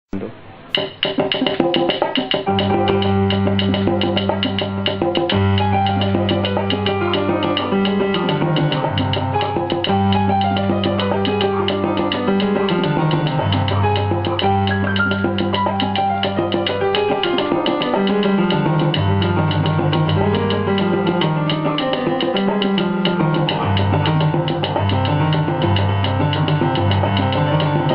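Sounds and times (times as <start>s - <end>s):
pitched instruments: 0.1s - 27.9s
hand percussion: 0.7s - 27.9s
deep bass line: 18.1s - 21.7s, 22.5s - 27.9s.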